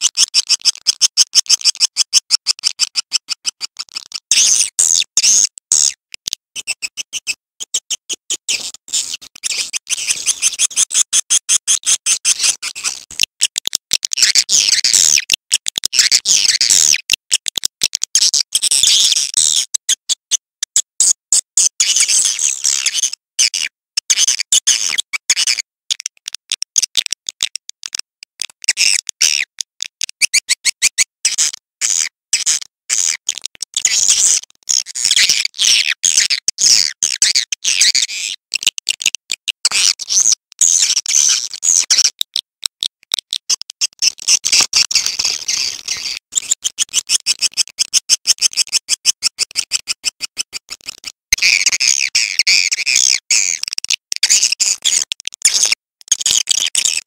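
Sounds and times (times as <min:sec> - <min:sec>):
swiftlet clicks and chirps: 0:26.2 - 0:31.1.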